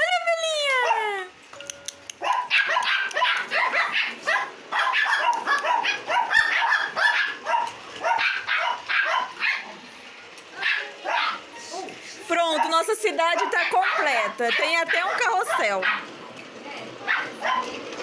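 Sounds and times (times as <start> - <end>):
dog barking: 2.2 - 9.8, 10.6 - 11.4, 12.5 - 16.1, 17.0 - 17.8.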